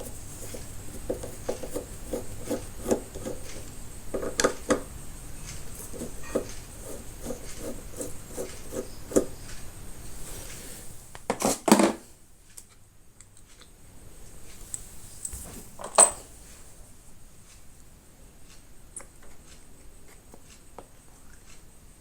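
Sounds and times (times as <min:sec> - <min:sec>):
metal tools clinking: 0:14.7 - 0:16.3.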